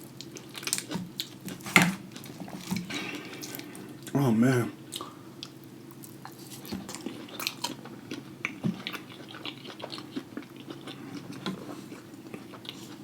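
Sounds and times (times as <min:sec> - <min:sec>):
chewing and mouth smacking: 0:04.9 - 0:13.0.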